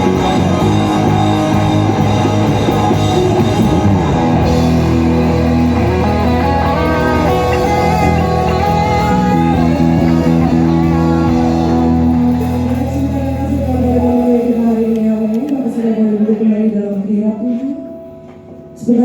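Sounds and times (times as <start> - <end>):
person singing: 0.0 - 17.7
worship band playing: 0.0 - 19.0.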